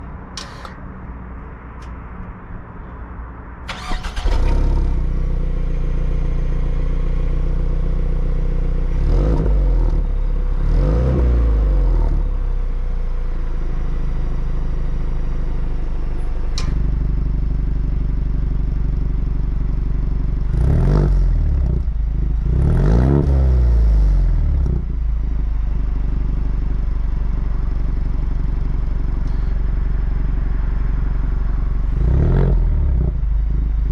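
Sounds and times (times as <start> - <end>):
car engine starting and idling: 0.0 - 2.6, 3.5 - 33.9
engine revving: 3.7 - 5.1, 8.9 - 12.3, 20.5 - 24.9, 31.8 - 33.9.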